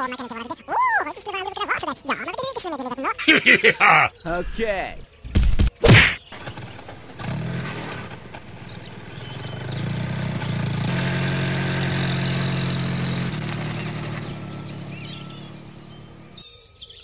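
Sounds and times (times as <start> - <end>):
birds chirping: 0.0 - 17.0
motor humming: 8.1 - 16.4.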